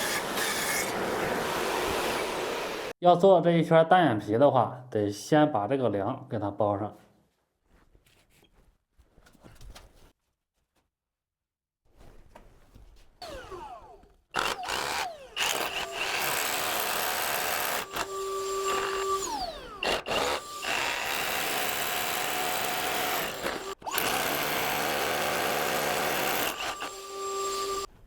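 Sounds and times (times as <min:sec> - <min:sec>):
motor whining down: 0:13.2 - 0:15.6
handheld power tool running: 0:13.2 - 0:27.9.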